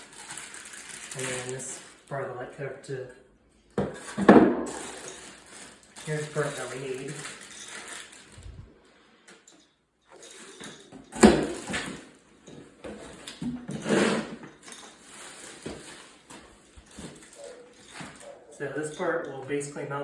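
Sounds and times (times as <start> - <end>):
rustling: 0.0 - 2.2, 4.0 - 9.5, 10.2 - 19.0
fan parts clattering: 10.2 - 19.7.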